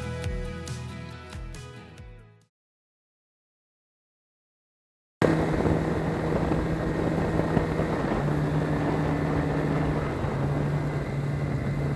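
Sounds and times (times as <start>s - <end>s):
motorcycle engine running: 5.2s - 11.9s
wash of noise: 5.2s - 11.9s.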